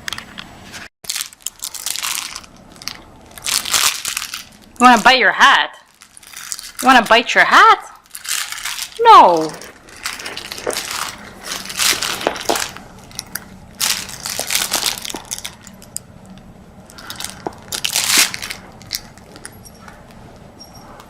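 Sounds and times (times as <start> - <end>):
dog chewing and crunching toy: 1.1 - 4.8, 8.0 - 16.0, 16.9 - 20.1.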